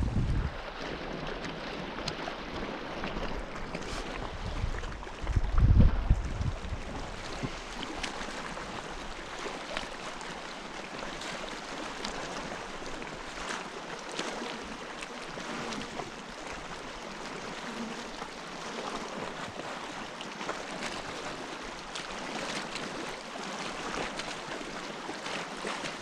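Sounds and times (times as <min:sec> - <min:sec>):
water lapping on rocks: 0:00.0 - 0:26.0.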